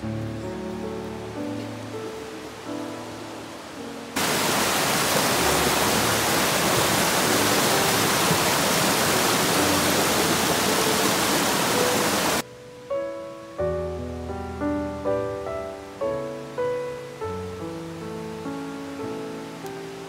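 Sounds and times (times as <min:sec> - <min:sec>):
gentle piano music: 0:00.0 - 0:20.0
mountain stream rushing over rocks: 0:04.2 - 0:12.5.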